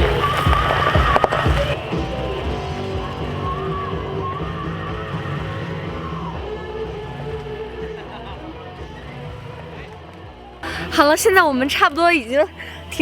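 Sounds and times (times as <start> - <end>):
background guitar music: 0.0 - 13.0.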